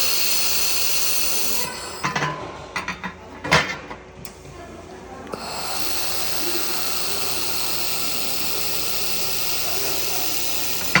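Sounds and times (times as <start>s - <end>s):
welding hiss: 0.0s - 2.2s, 5.3s - 11.0s.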